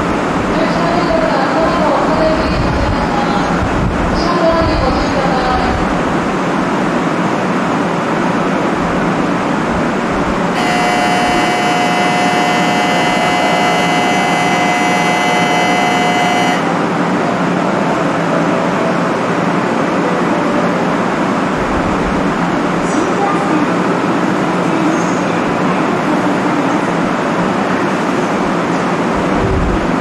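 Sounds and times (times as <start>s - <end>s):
high whine of flat tones: 10.5s - 17.0s.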